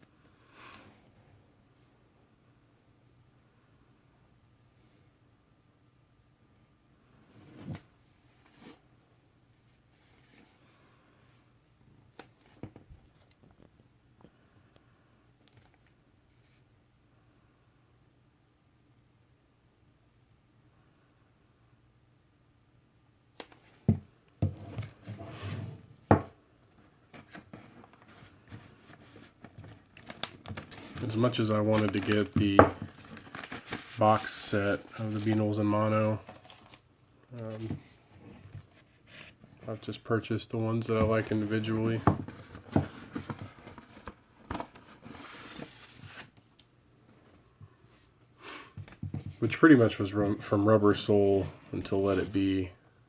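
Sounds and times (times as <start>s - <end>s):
record packaging rubbing: 27.1s - 35.6s, 40.9s - 46.4s
paper and card rustling: 27.1s - 40.0s, 40.8s - 46.6s.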